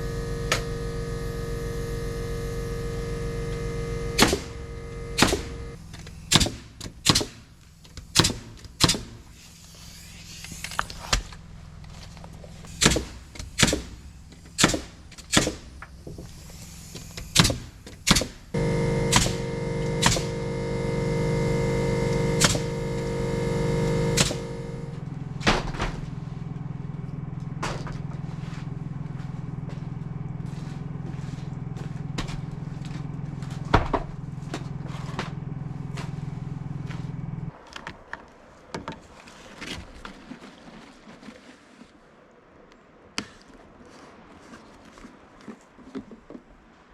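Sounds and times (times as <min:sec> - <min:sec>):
motor running: 0:00.0 - 0:05.8, 0:18.6 - 0:25.1
steady low hum: 0:00.0 - 0:05.8, 0:18.6 - 0:25.4.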